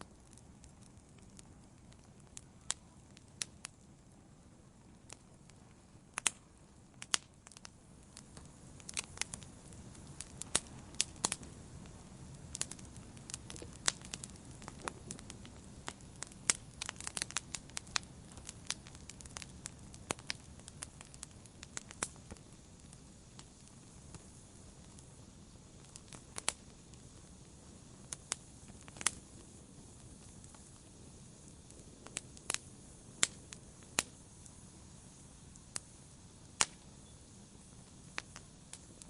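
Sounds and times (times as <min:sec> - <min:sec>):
campfire crackling and popping: 0:00.0 - 0:39.0
soft rustle of flames: 0:00.0 - 0:39.0.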